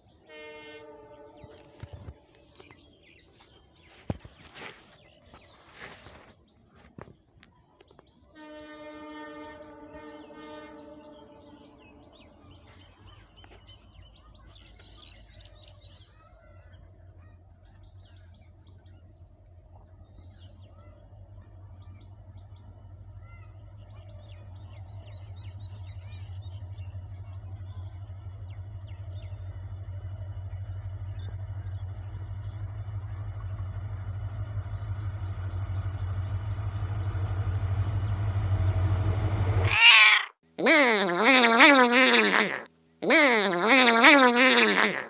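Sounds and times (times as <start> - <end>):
train rumble: 0.0 - 40.2
distant train horn: 0.1 - 2.7, 8.3 - 12.9
birds chirping: 0.9 - 8.3, 10.2 - 37.4, 39.6 - 45.0.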